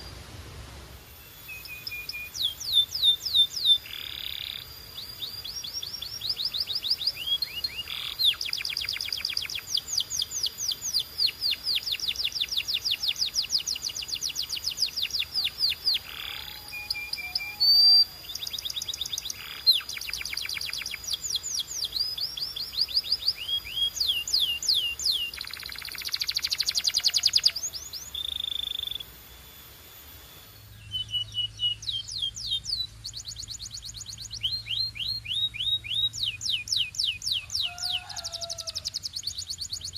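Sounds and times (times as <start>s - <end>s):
low hum: 0.0s - 17.2s, 27.6s - 37.4s
canary singing trills: 1.1s - 39.9s.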